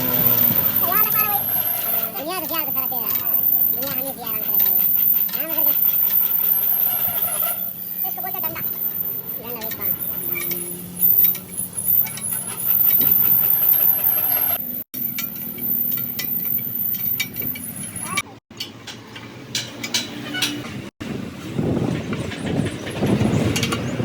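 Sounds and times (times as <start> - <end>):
metal clanks on a steel rim: 17.0 - 20.8.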